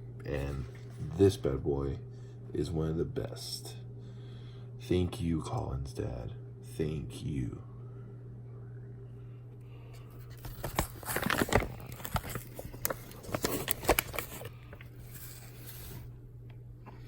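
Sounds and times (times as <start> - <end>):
low appliance hum: 0.0 - 17.0
packaging crinkling and tearing: 10.2 - 16.0.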